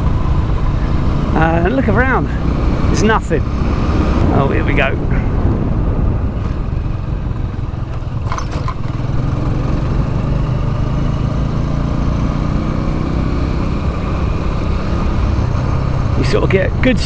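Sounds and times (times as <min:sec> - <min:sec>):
motorcycle engine running: 0:00.0 - 0:17.0
short double rattle: 0:04.2 - 0:09.4.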